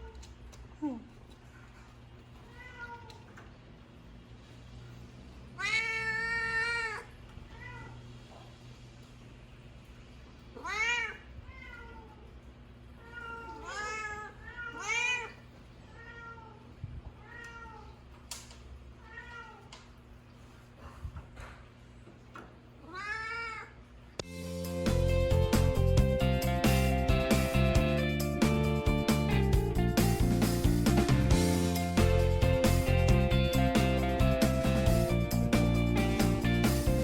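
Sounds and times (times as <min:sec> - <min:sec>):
cats meowing: 0:02.3 - 0:03.5, 0:05.5 - 0:08.3, 0:10.5 - 0:18.2, 0:18.9 - 0:20.0, 0:22.8 - 0:23.8.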